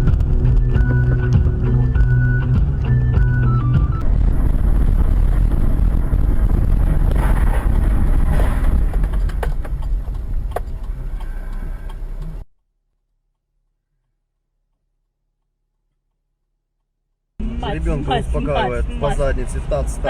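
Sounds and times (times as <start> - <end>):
car rumbling: 0.0 - 12.5, 17.4 - 20.0.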